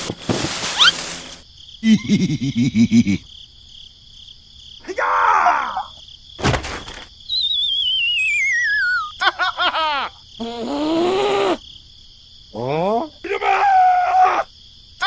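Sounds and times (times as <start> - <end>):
crickets chirring: 0.0 - 15.0
thump: 6.4 - 7.1
falling wobbly whistle: 7.3 - 9.1
cartoon squeal: 7.3 - 9.3.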